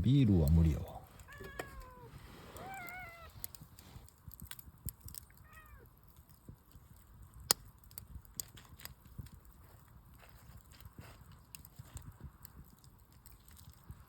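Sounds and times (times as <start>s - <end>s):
campfire crackling: 0.0s - 14.0s
cat meowing: 1.2s - 3.4s, 5.4s - 5.9s.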